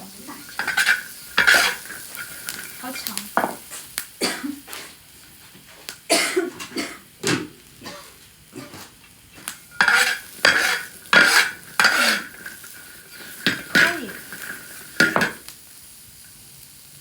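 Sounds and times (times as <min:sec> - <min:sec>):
faint sizzling: 0:00.0 - 0:17.0
metal spatula scraping a wok: 0:00.1 - 0:03.6, 0:08.6 - 0:15.4.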